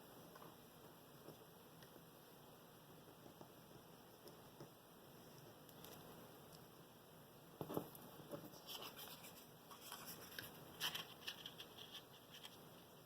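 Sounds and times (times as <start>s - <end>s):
paper rustling: 8.5s - 12.6s.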